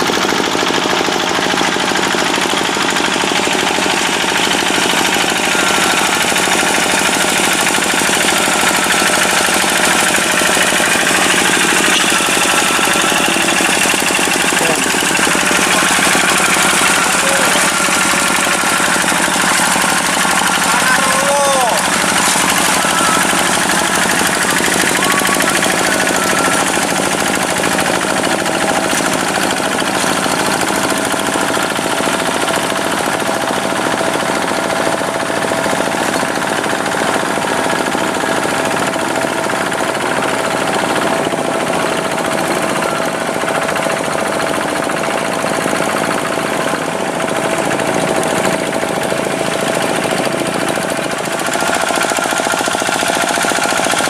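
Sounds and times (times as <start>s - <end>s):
tractor engine running: 0.0s - 54.0s
constant high tone: 3.8s - 39.3s.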